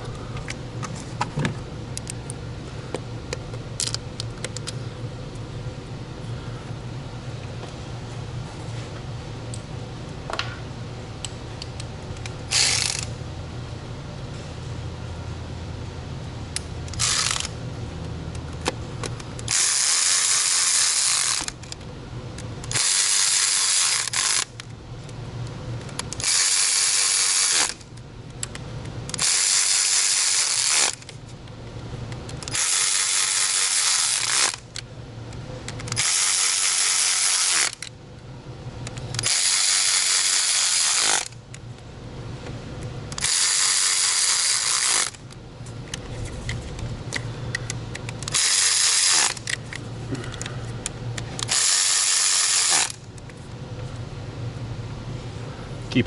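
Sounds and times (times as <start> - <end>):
cordless drill driving screws: 48.3 - 49.5, 51.4 - 53.0.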